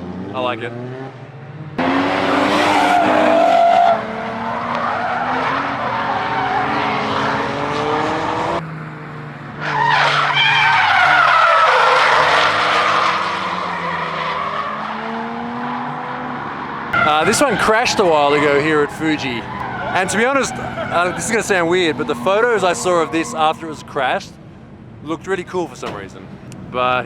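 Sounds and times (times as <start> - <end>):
car engines revving high: 0.0 - 27.0
tyres screeching: 1.8 - 7.6, 9.6 - 15.6, 17.0 - 24.3.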